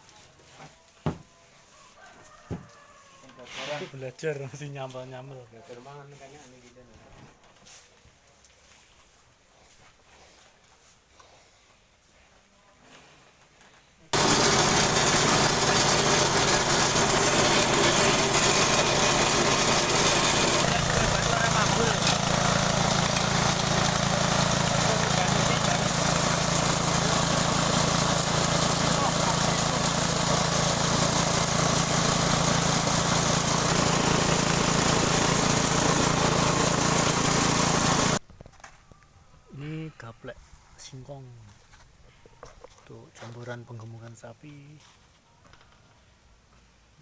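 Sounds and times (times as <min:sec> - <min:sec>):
chopper machine running: 0:14.2 - 0:38.2.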